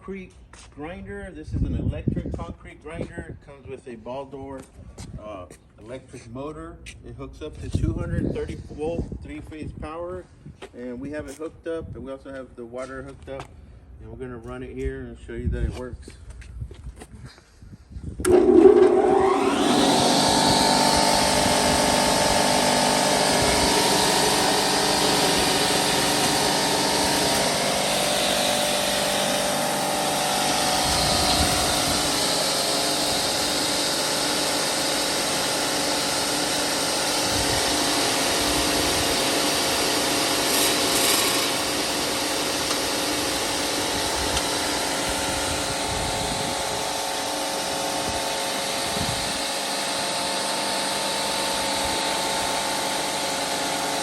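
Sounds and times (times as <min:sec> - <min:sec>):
concrete saw whining: 0:18.2 - 0:54.0.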